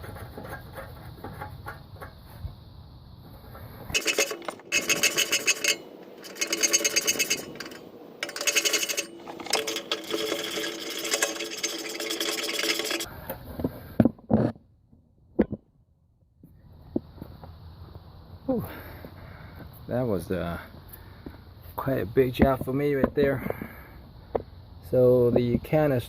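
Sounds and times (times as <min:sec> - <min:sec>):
power tool rattling on fasteners: 0:03.9 - 0:13.1.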